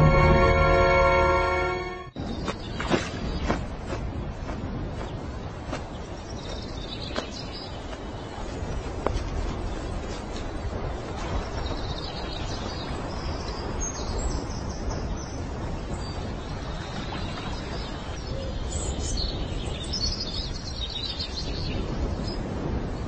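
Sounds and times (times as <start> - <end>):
low rushing noise: 0.0 - 2.4.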